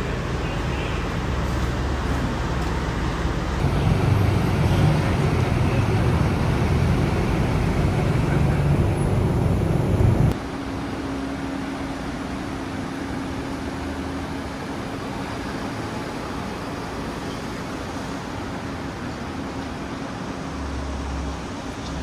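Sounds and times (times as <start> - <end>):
street traffic noise: 0.0 - 10.6
faint hum: 3.6 - 10.3
car engine running loudly: 3.6 - 10.4.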